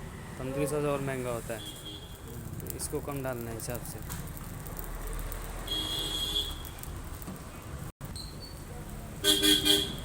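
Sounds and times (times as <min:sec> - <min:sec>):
street traffic rumbling: 0:00.0 - 0:10.0
vehicle horn toot: 0:05.7 - 0:06.6, 0:09.2 - 0:10.0.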